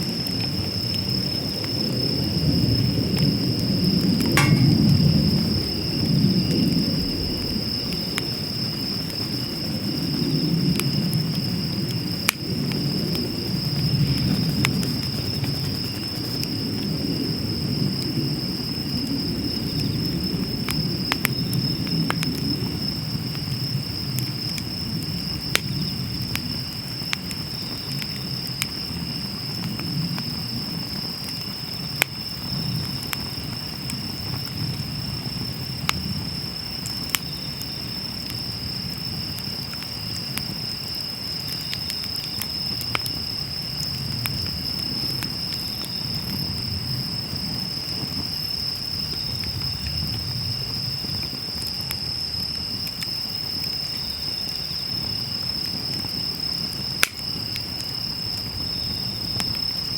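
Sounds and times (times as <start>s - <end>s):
insects trilling: 0.0s - 59.9s
wood fire crackling: 3.5s - 6.0s, 36.7s - 59.9s.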